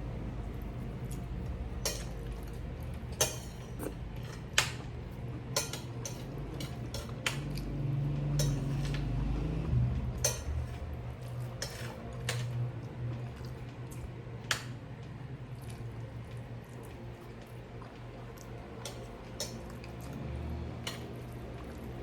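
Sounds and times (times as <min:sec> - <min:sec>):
low steady hum: 0:00.0 - 0:22.0
cutlery clinking against dish: 0:01.8 - 0:02.4, 0:03.1 - 0:04.9, 0:05.5 - 0:07.6, 0:08.4 - 0:09.1, 0:10.2 - 0:10.8, 0:11.6 - 0:12.6.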